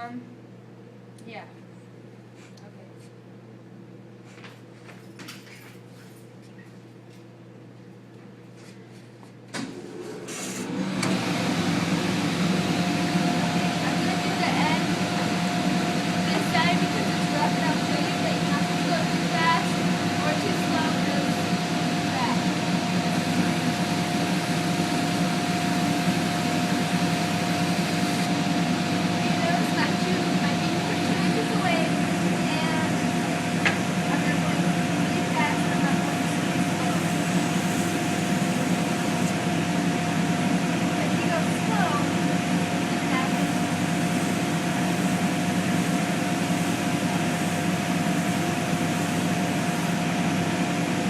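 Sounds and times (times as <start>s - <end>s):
constant high whine: 9.5s - 51.0s
dust collector humming: 9.6s - 51.0s
disc sander whining: 34.0s - 39.5s.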